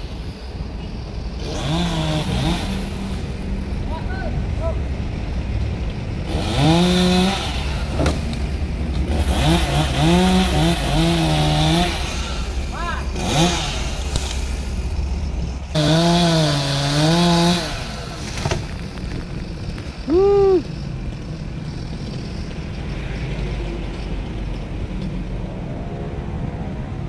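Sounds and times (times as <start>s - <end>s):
chainsaw revving: 1.4s - 3.3s, 6.2s - 8.2s, 9.0s - 14.9s, 15.7s - 18.4s.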